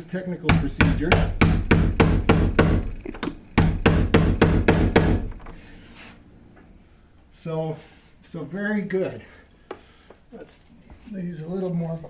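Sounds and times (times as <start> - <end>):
hammer pounding on door: 0.5 - 5.7.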